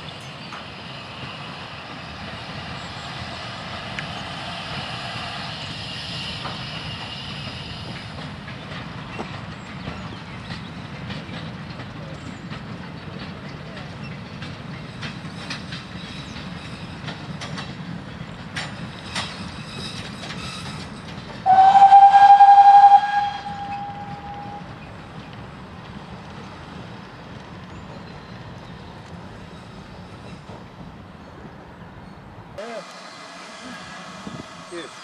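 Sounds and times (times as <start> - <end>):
train rumble: 0.0 - 35.0
train wheels clicking over rail joints: 0.4 - 31.6
locomotive whistle blast: 21.4 - 24.7.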